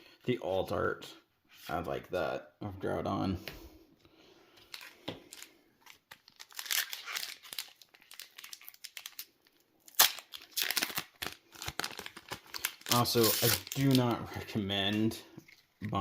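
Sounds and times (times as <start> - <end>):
foil wrapper crinkling and tearing: 4.6 - 14.1.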